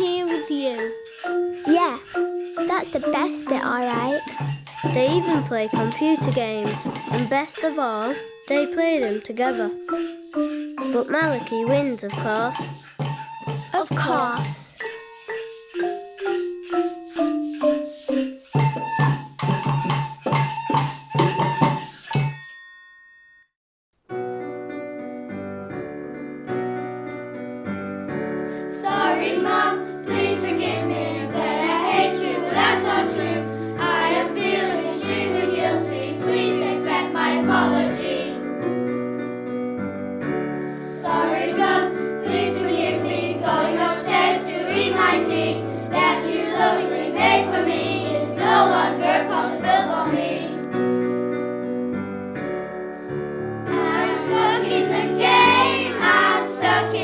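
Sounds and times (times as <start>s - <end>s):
piano accompaniment: 0.0s - 22.3s, 24.1s - 57.0s
children's choir singing: 1.6s - 14.8s, 28.6s - 38.5s, 40.8s - 50.7s, 53.7s - 57.0s.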